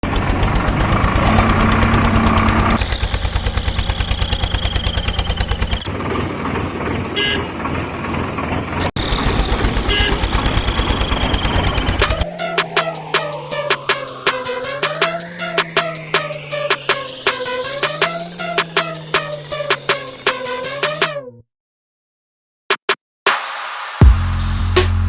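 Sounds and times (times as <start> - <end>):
tractor engine chugging: 0.0 - 20.8
music with a beat: 12.0 - 21.2, 22.7 - 25.0.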